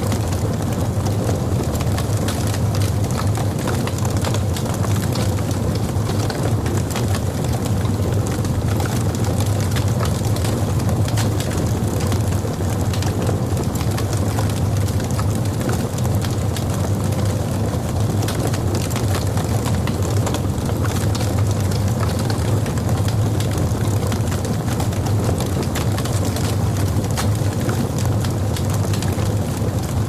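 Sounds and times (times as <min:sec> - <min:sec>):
fire crackling and popping: 0:00.0 - 0:30.0
fire rumbling in fireplace: 0:00.0 - 0:30.0.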